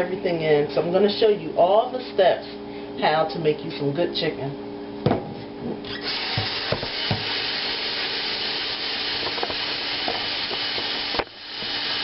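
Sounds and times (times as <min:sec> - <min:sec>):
tap water running: 0:05.9 - 0:12.0.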